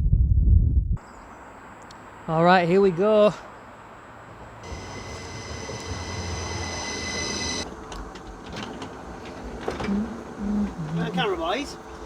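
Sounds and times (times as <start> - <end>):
train brakes squealing: 4.6 - 7.7
train wheels rumbling: 4.6 - 12.0.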